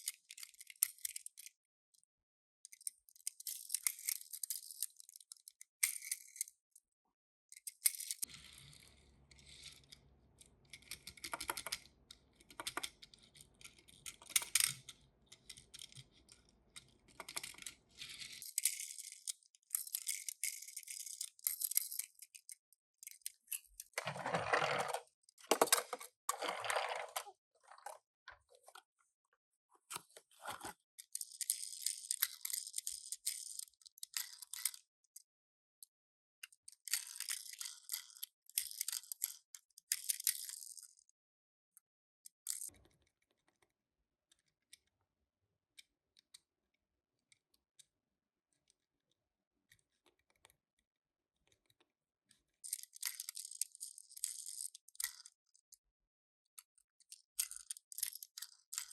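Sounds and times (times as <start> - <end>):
small rattles and clicks: 57.0 - 58.9.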